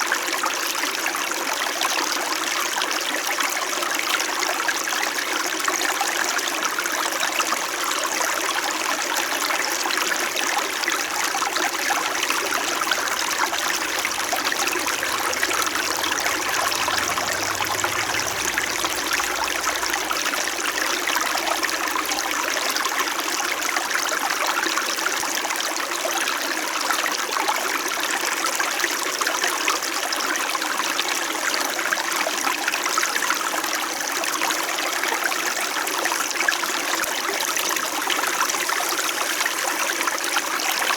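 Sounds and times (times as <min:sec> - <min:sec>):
stream trickling over stones: 0:04.9 - 0:28.1.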